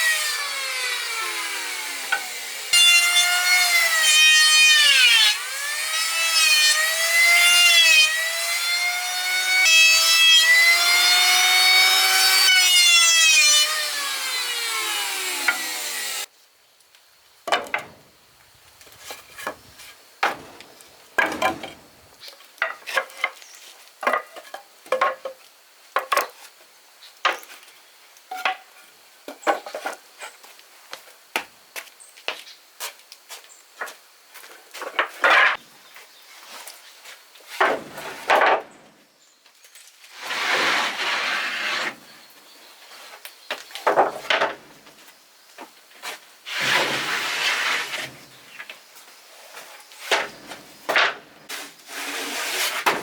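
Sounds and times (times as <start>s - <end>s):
power saw cutting wood: 0.0s - 16.3s, 40.1s - 42.1s, 46.5s - 48.4s.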